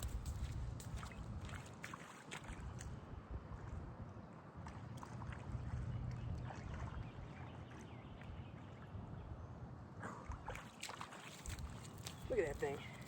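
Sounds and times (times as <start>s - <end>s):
water sloshing and splashing: 0.0s - 3.0s, 4.6s - 7.9s, 10.1s - 13.0s.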